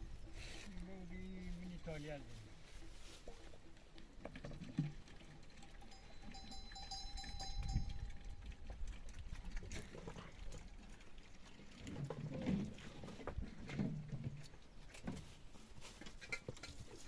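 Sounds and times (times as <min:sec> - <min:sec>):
thin steady tone: 0:05.8 - 0:08.8.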